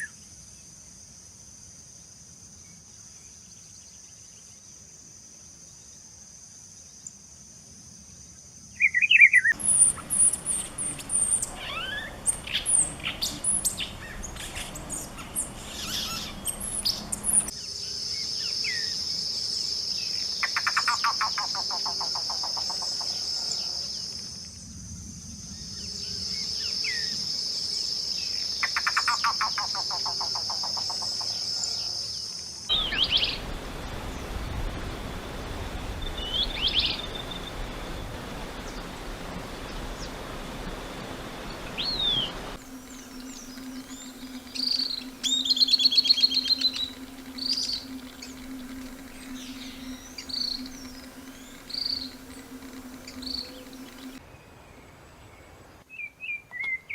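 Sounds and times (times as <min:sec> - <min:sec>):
birds singing: 0:08.8 - 0:24.1, 0:32.7 - 0:34.4, 0:41.4 - 0:54.2
high-pitched insect drone: 0:09.5 - 0:31.9, 0:42.4 - 0:54.2.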